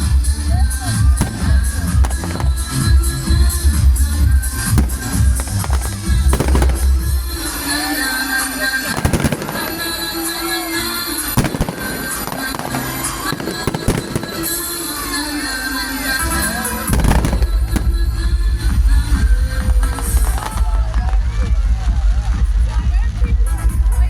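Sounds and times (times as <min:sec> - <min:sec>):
fireworks whistling: 0:00.0 - 0:18.2
fireworks bangs: 0:00.0 - 0:22.4
music playing: 0:00.0 - 0:24.0.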